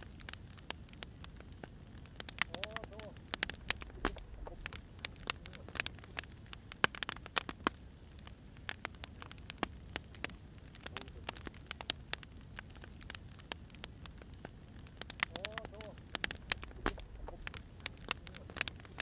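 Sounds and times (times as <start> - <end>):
firewood crackling and popping: 0.0 - 19.0
low fire rumble: 0.0 - 19.0.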